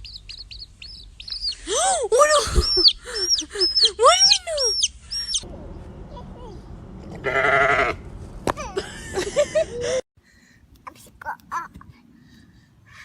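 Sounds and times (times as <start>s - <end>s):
animal bleat-like calls: 7.2s - 8.0s.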